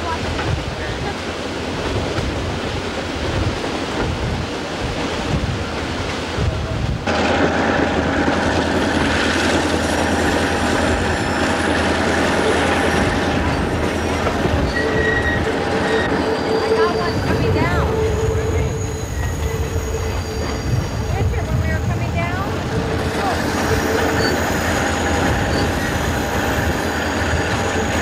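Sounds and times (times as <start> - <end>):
rushing noise: 0.0 - 28.0
train wheels rumbling on rails: 0.0 - 28.0
wheels squealing on curve: 12.4 - 28.0.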